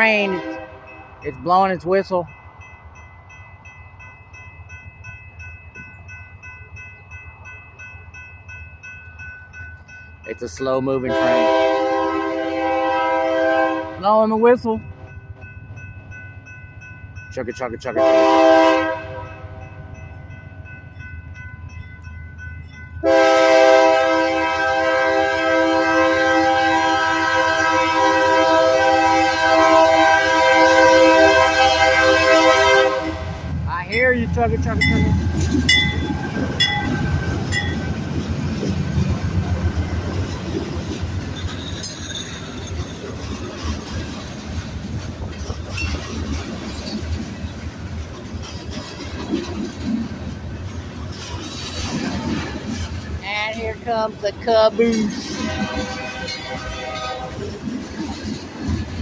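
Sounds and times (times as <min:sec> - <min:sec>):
locomotive air horn chord: 0:00.0 - 0:00.9, 0:11.1 - 0:14.0, 0:18.0 - 0:19.6, 0:23.0 - 0:33.5, 0:55.4 - 0:57.5
crossing signal bell: 0:00.0 - 0:11.8, 0:13.9 - 0:24.3, 0:33.8 - 0:38.0
train rumbling: 0:00.0 - 0:59.0
wheels clacking over rail joints: 0:33.7 - 0:59.0.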